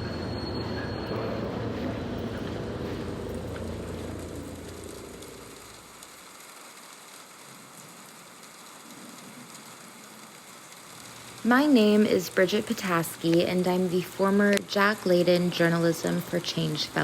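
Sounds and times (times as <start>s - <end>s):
streetcar rumbling past: 0.0s - 6.0s
light rain on a street: 0.0s - 17.0s.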